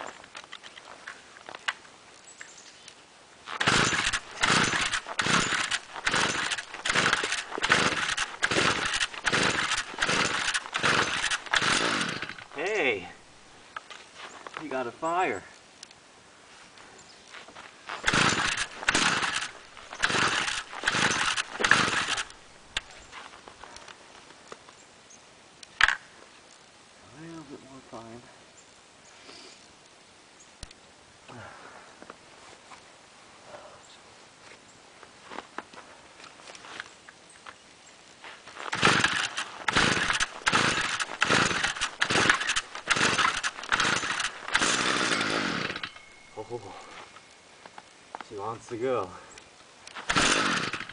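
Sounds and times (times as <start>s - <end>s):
recoil starter cord pulls: 3.5s - 12.6s, 18.0s - 22.9s, 38.7s - 46.1s, 49.9s - 50.9s
string trimmer sputtering: 3.5s - 13.0s, 17.9s - 23.0s, 38.7s - 47.0s, 49.9s - 50.9s
faint clicks: 30.6s - 31.4s.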